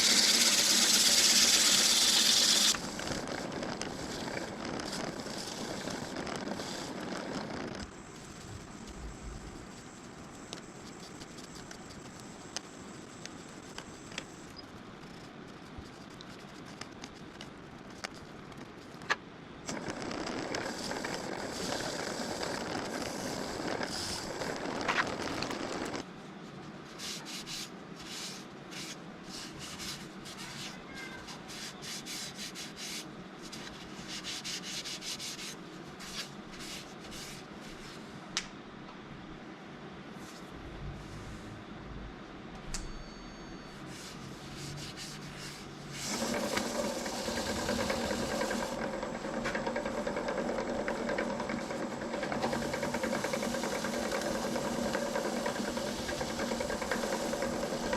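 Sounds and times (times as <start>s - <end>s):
sandpaper rubbing on wood: 0.0s - 2.8s
wood lathe running: 0.0s - 3.0s, 46.0s - 57.9s.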